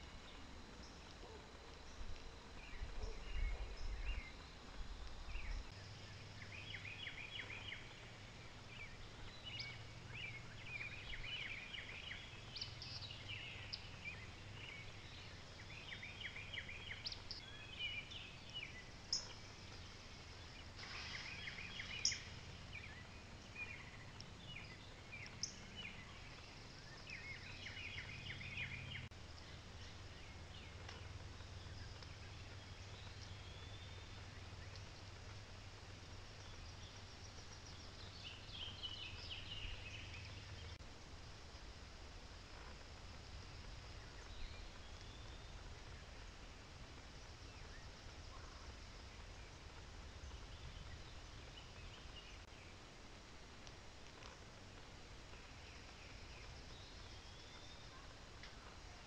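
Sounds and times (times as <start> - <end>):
birds singing: 0.0 - 40.8, 55.0 - 59.0
low background hum: 0.0 - 59.0.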